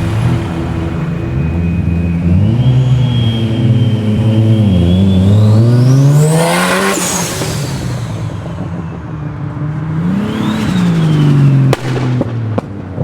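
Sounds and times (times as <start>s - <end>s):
high whine: 0.0s - 8.9s
car engine accelerating hard: 0.0s - 13.0s.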